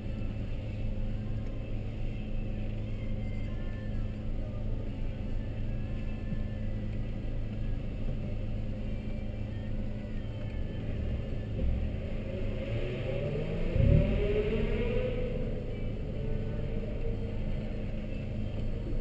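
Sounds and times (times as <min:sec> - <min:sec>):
engine revving: 0:11.7 - 0:17.4.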